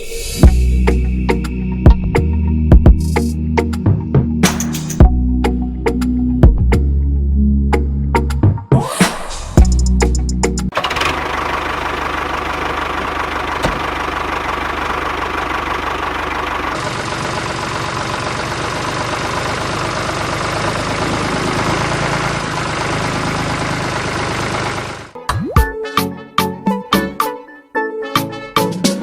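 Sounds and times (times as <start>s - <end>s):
small engine running: 10.7s - 25.2s.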